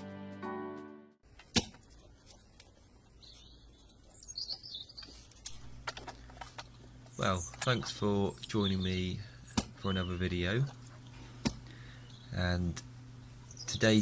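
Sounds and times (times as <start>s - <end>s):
faint bird chirps and song: 2.8s - 5.5s, 6.8s - 14.0s.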